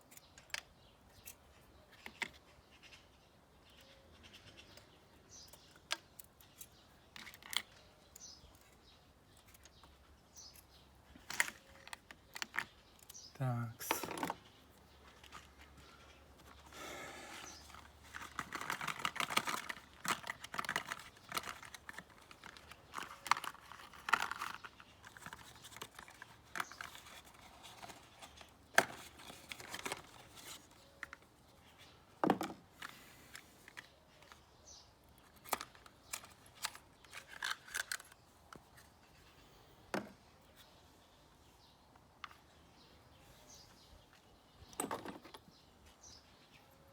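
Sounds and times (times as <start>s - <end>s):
tools clicking and rustling: 17.6s - 31.2s, 35.2s - 38.9s.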